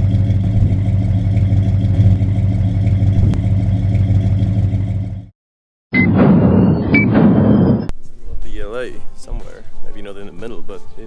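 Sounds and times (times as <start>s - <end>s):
vehicle engine droning: 0.0s - 5.3s.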